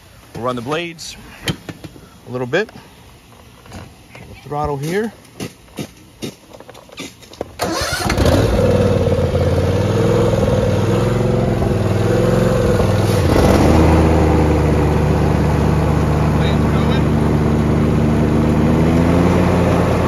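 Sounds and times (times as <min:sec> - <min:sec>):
lawn mower engine running: 0:07.6 - 0:20.0.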